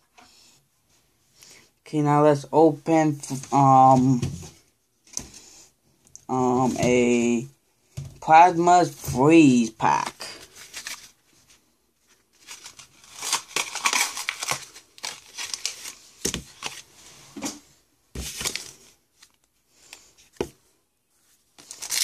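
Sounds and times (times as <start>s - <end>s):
foil wrapper crinkling and tearing: 12.4s - 16.8s, 21.6s - 22.0s.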